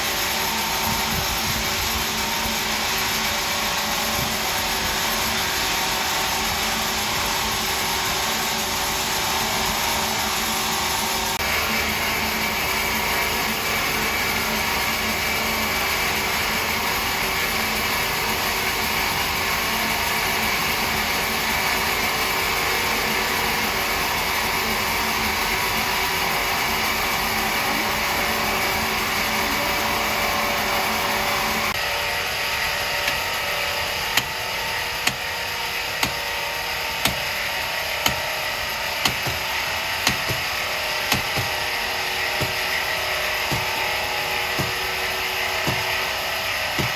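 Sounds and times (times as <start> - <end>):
sawmill machinery running: 0.0 - 46.9
sharp knocks: 40.0 - 40.5, 41.1 - 41.6, 42.4 - 42.7, 43.4 - 43.8, 44.5 - 44.8, 45.6 - 46.0.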